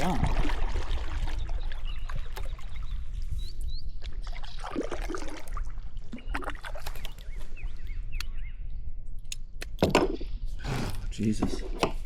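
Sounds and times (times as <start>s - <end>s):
water sloshing around kayak: 0.0s - 7.8s.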